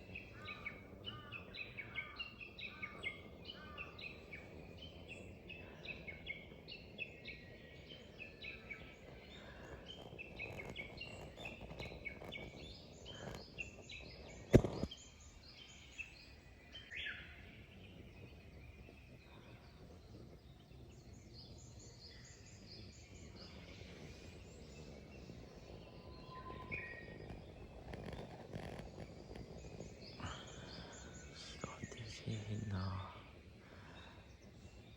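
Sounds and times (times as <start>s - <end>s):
songbirds chirping and singing: 0.0s - 34.9s.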